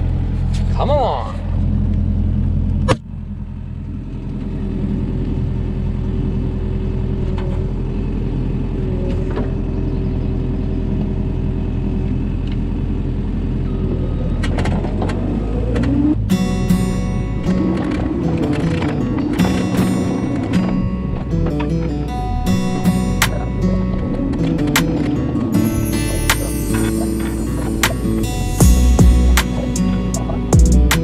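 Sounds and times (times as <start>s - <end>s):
vehicle engine droning: 0.0s - 31.0s.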